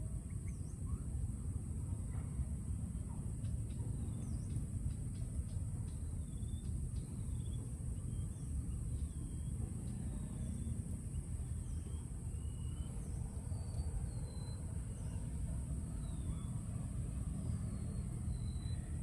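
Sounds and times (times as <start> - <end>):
bird chirps: 3.7 - 19.0.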